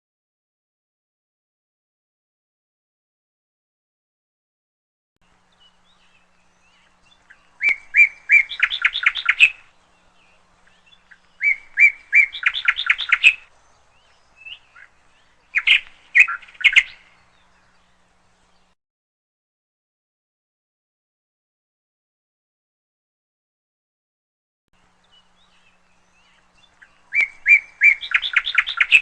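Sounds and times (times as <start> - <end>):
canary singing: 5.3 - 18.7, 24.9 - 29.0.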